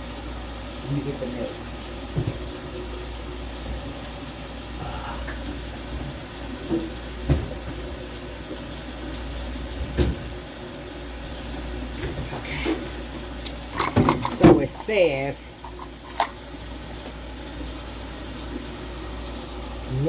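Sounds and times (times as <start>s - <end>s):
kitchen faucet running: 0.0s - 20.0s
kitchenware knocks: 13.8s - 16.4s.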